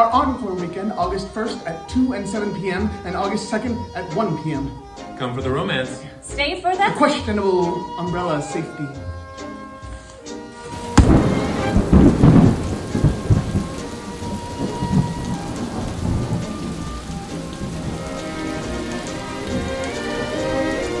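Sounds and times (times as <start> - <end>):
heavy rain: 10.6 - 21.0
thunder rumble: 10.8 - 21.0
thunderclap crack: 10.8 - 21.0.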